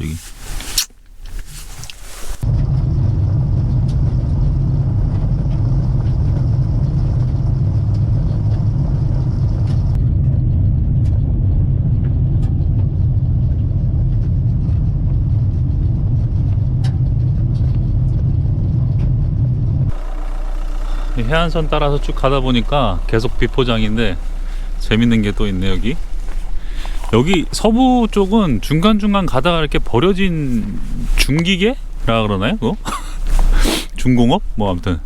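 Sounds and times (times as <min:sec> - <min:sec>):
tyres and engine rumbling: 0:00.0 - 0:02.7, 0:19.8 - 0:35.0.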